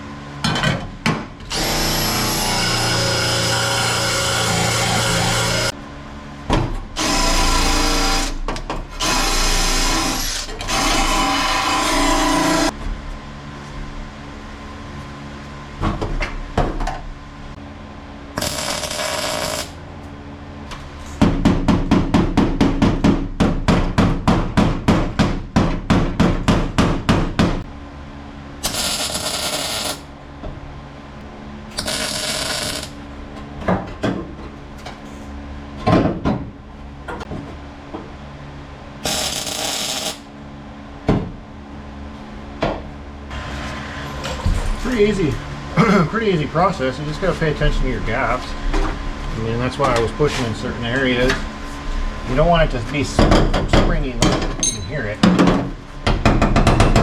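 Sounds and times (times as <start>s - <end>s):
angle grinder wire wheel: 18.4s - 19.8s, 28.6s - 30.0s, 31.7s - 33.0s, 39.0s - 40.2s.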